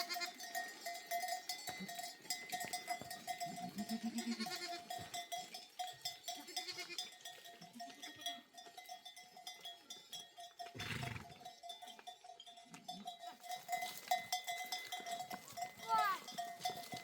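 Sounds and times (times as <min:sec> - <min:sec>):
sheep bleating: 0:00.0 - 0:00.4, 0:03.4 - 0:05.0, 0:06.4 - 0:07.0
livestock bells clinking: 0:00.0 - 0:17.0.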